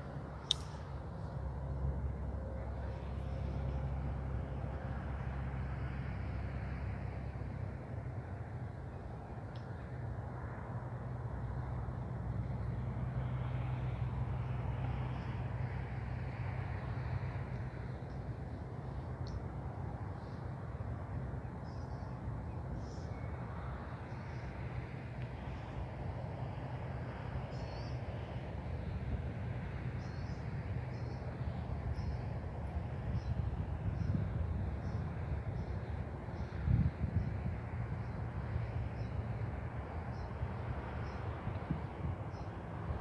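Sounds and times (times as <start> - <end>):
distant road traffic rumble: 0.0 - 43.0.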